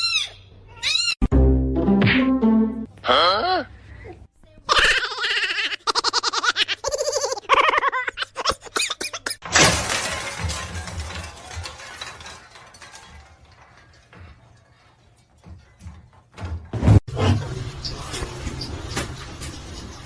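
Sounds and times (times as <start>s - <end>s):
music: 1.3s - 2.9s
shattering crash: 9.4s - 14.9s.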